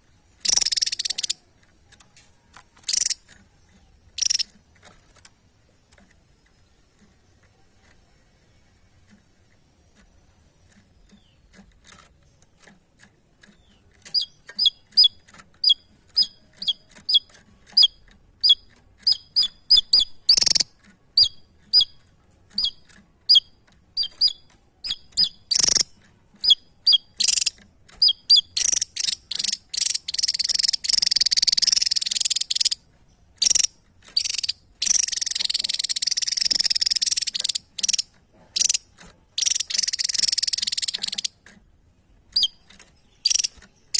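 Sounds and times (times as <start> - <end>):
bird buzzing trill: 0.0 - 1.4, 2.8 - 3.2, 4.2 - 4.5, 17.8 - 21.9, 24.0 - 32.8, 33.4 - 38.8, 39.4 - 41.4, 42.4 - 43.9
faint ticks: 0.0 - 41.7, 42.3 - 43.9
sharp clicks: 0.0 - 43.9
songbird chirping: 0.0 - 43.9.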